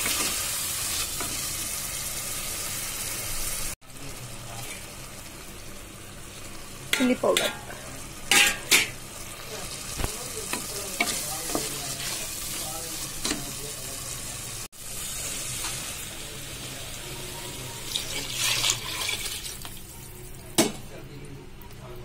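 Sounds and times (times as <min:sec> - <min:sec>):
vegetables sizzling in a pot: 0:00.0 - 0:21.0
water pouring into a pot: 0:17.8 - 0:20.3.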